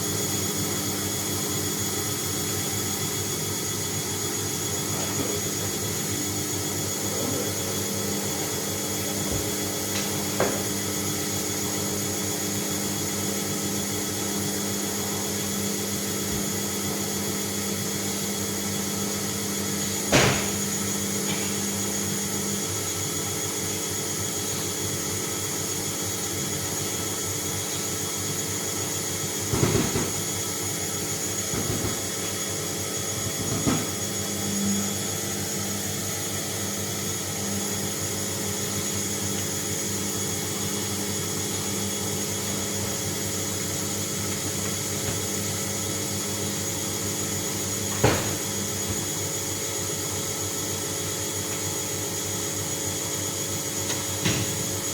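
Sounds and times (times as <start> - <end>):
washing machine motor hum: 0.0 - 54.9
washing machine knocks: 20.1 - 20.7, 29.5 - 30.4, 31.5 - 32.4, 48.0 - 49.1, 54.2 - 54.8.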